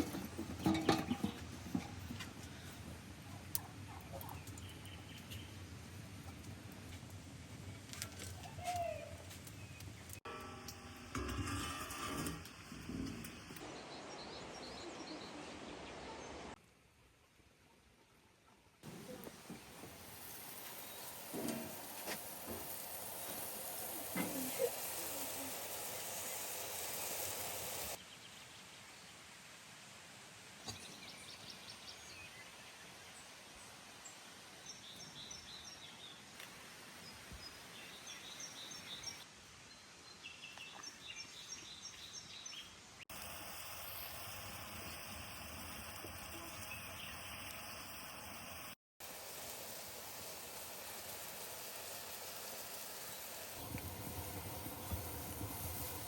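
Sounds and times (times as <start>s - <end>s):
small birds chirping: 3.3s - 5.6s, 40.2s - 48.6s
steady hiss: 18.8s - 39.9s, 41.2s - 56.0s.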